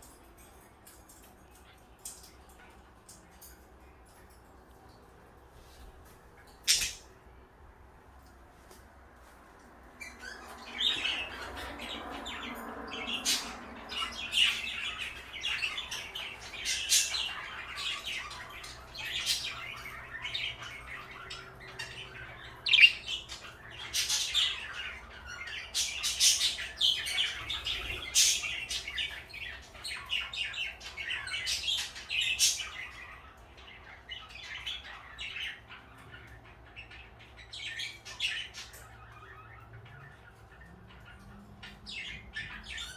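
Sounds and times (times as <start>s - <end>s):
parakeets chirping and chattering: 0.0s - 8.3s, 9.6s - 42.9s
sharp squawks: 22.1s - 25.0s.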